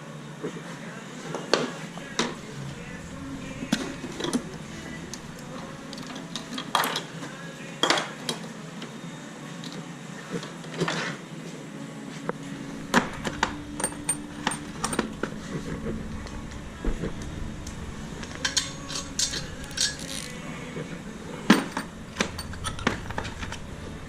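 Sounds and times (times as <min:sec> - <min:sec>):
metal tools clinking: 0:13.8 - 0:15.1, 0:18.4 - 0:20.4.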